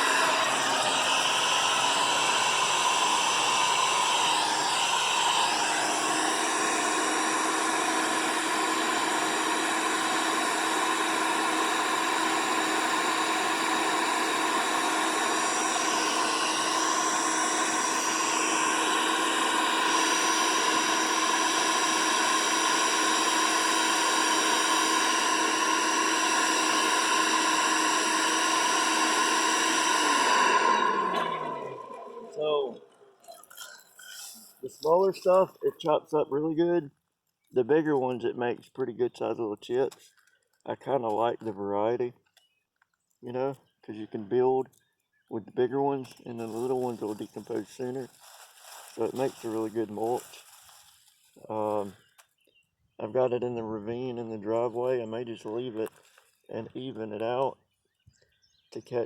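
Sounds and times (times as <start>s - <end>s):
wood chipper motor whine: 0.0s - 33.3s, 46.1s - 51.9s.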